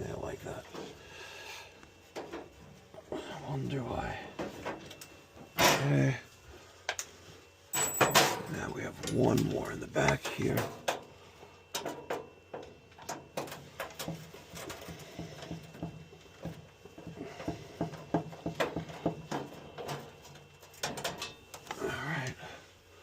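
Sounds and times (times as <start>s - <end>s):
metal clicks and clatter: 18.6s - 21.8s.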